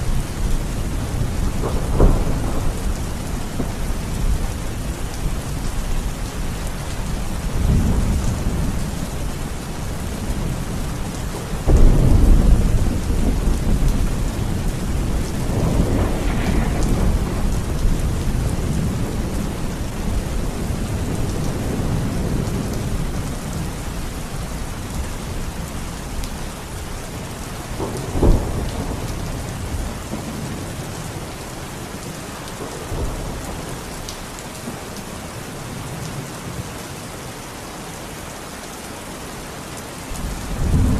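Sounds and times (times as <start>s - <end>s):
steady rain: 0.0s - 40.9s
low rolls of thunder: 0.1s - 6.6s, 7.2s - 34.8s, 40.2s - 40.9s
sharp thunderclap: 1.0s - 4.9s, 11.6s - 23.6s, 27.8s - 30.9s, 40.5s - 40.9s.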